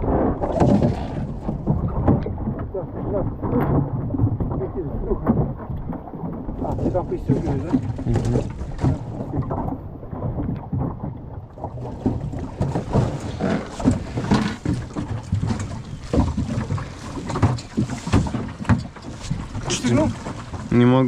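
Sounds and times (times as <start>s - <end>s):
low rumble of water: 0.0s - 21.0s
wind: 0.0s - 21.0s
sailing dinghy fittings clattering: 12.5s - 20.8s.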